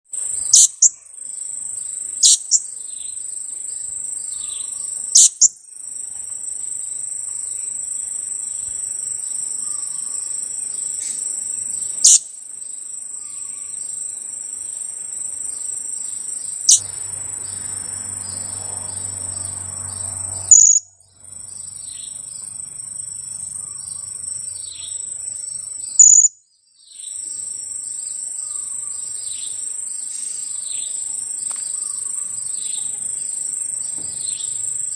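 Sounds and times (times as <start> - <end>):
high-pitched insect drone: 0.2 - 5.6, 6.6 - 26.4
parrot calling: 0.5 - 1.0, 2.2 - 2.6.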